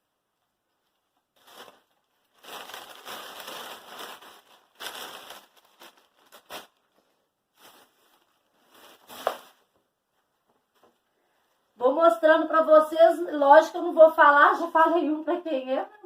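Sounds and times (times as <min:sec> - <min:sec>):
packaging rustling and crinkling: 0:00.7 - 0:09.9.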